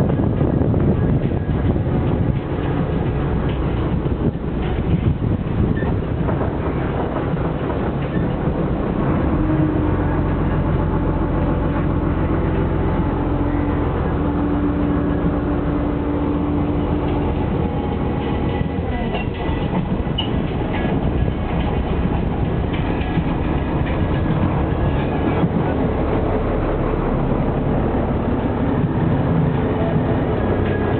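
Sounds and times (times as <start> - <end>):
boat engine running: 0.0 - 30.9.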